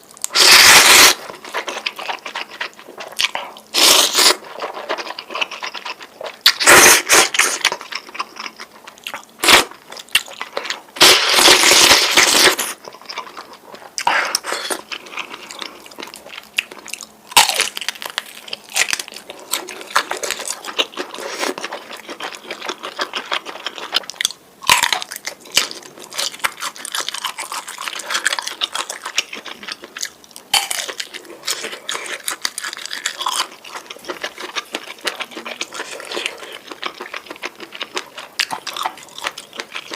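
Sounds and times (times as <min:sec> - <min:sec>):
slurping noodles: 0:00.3 - 0:01.2
chewing with wet mouth clicks: 0:12.9 - 0:39.9.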